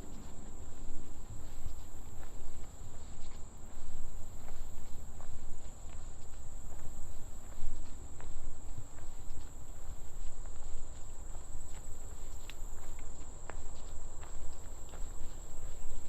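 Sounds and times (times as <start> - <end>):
footsteps: 0.0 - 16.0
insects droning: 0.0 - 16.0.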